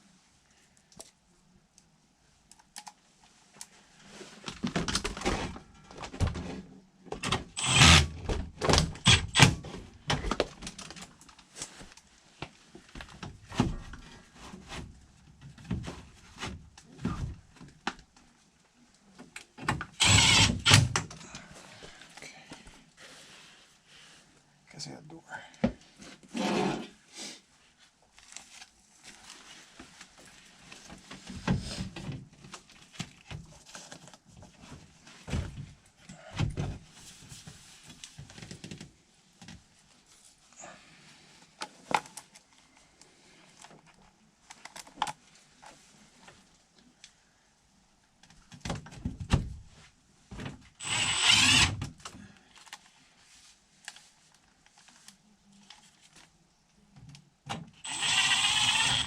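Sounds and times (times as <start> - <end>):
power drill bursts: 7.6 - 8.1, 9.0 - 9.6, 20.0 - 20.9, 50.8 - 51.8, 57.8 - 59.0.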